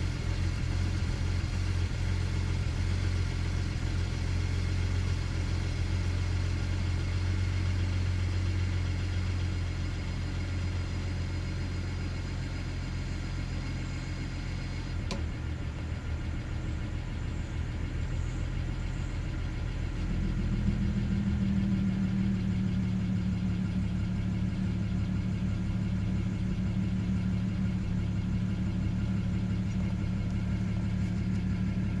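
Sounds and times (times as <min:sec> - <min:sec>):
car engine idling unsteadily: 0:00.0 - 0:32.0
click: 0:15.1 - 0:15.3, 0:29.7 - 0:30.4.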